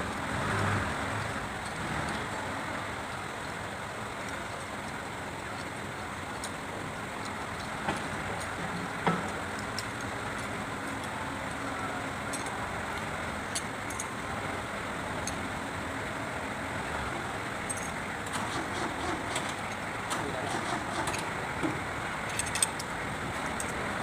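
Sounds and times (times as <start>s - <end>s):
tools clinking on metal: 12.2s - 14.2s, 17.6s - 18.0s, 22.2s - 23.8s.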